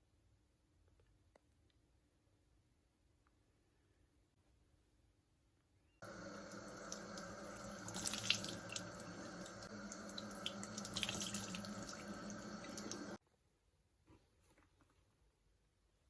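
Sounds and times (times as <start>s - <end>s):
tap water running into sink: 6.0s - 13.2s.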